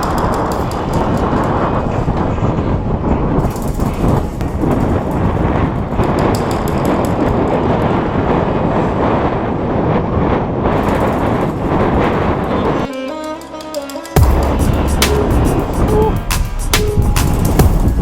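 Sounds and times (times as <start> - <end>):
wind buffeting microphone: 0.0 - 12.9, 14.2 - 18.0
sustained chord: 14.2 - 18.0.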